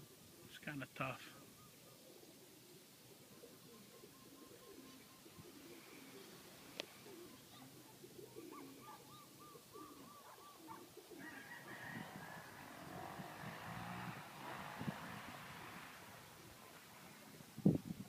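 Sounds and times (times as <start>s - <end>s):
pigeons cooing: 0.0s - 0.6s, 1.3s - 17.4s
bird chirping: 1.4s - 11.0s
soft rushing noise: 12.0s - 18.0s.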